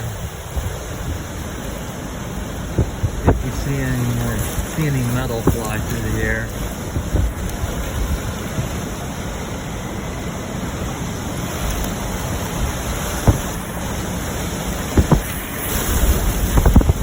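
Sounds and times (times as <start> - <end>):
strong wind buffeting microphone: 0.0 - 17.0
sharp thumps: 2.7 - 6.2, 6.9 - 7.5, 13.2 - 13.7, 14.9 - 15.5.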